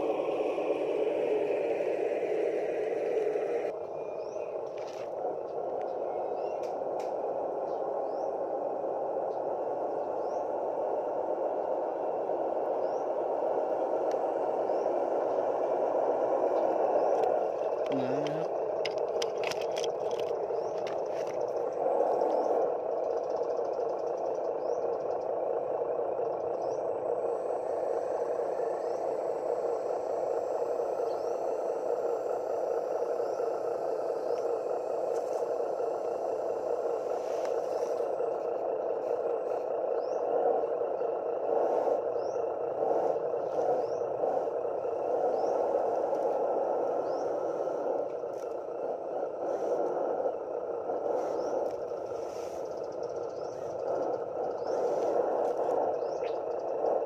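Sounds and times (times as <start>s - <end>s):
electric motors whirring: 12.8s - 57.0s
mechanical clicks: 17.1s - 21.7s.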